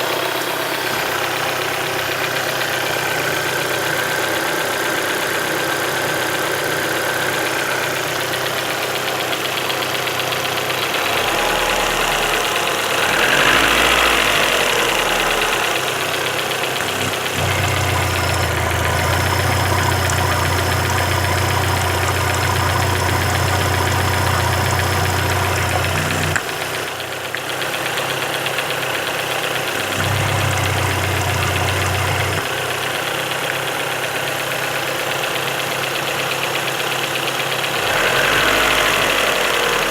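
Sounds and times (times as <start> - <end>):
car engine idling: 0.0 - 39.9
engine knock: 0.0 - 39.9
deep hum: 10.8 - 26.4, 29.6 - 32.4.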